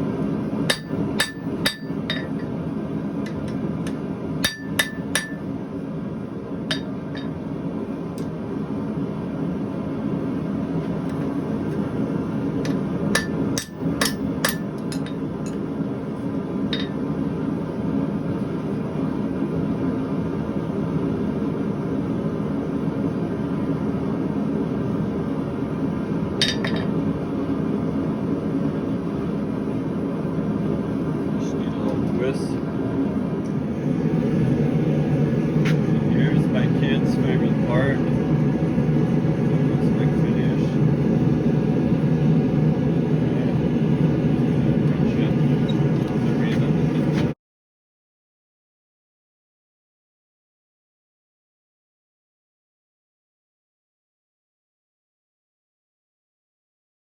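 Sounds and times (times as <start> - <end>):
steady low rumble: 0.0 - 47.4
hammer striking steel on anvil: 0.7 - 2.6, 3.2 - 5.5, 6.7 - 7.4, 12.6 - 15.6, 16.7 - 17.0, 26.4 - 26.9.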